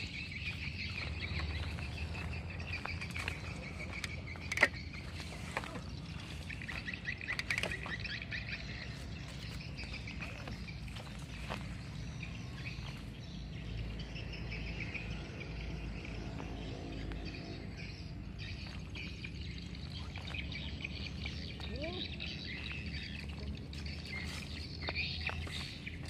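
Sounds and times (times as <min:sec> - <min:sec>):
birds chirping and calling: 0:00.0 - 0:26.0.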